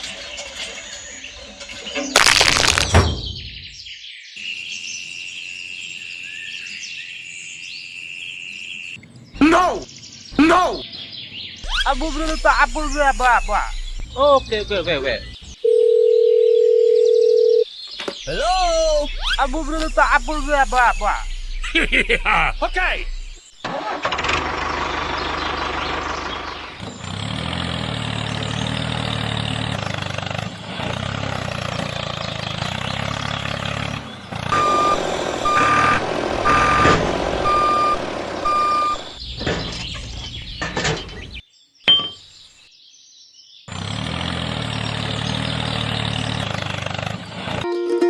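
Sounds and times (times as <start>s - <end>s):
high reversing beeps: 34.6s - 36.8s, 37.4s - 39.1s.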